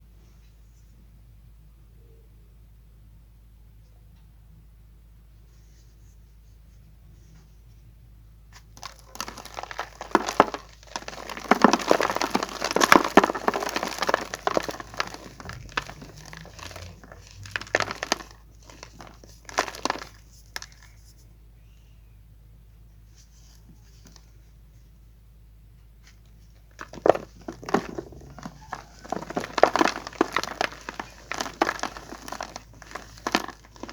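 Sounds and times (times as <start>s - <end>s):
chalk crumbling crackle: 8.6s - 21.3s, 26.5s - 33.9s.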